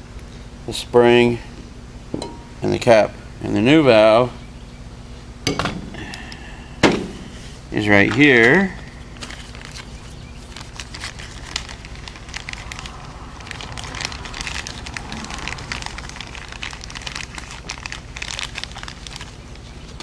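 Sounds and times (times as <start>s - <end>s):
plastic packaging crinkling: 7.9s - 20.0s.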